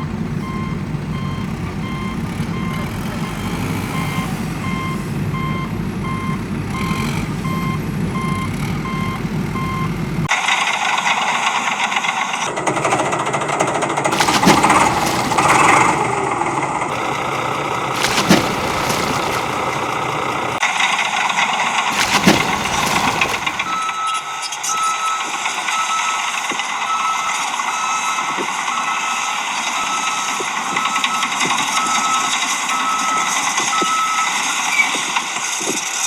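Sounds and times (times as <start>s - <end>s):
engine running with knocks: 0.0s - 10.3s, 12.4s - 20.6s, 22.0s - 23.8s.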